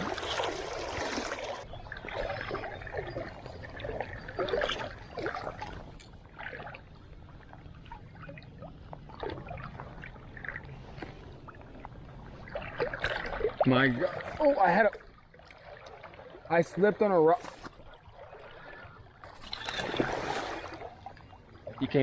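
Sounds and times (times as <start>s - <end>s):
creek water trickling: 0.0s - 22.0s
small splashes and knocks: 19.2s - 21.0s.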